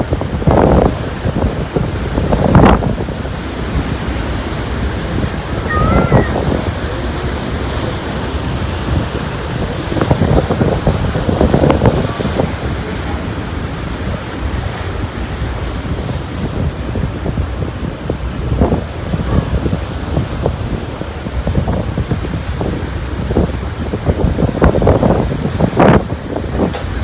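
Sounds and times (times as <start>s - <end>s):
sea water rushing: 0.0s - 27.0s
wind buffeting microphone: 0.0s - 27.0s.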